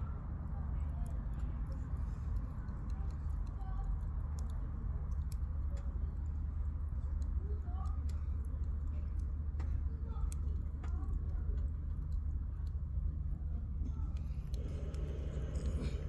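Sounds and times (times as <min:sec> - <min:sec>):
campfire crackling and popping: 0:14.1 - 0:16.0.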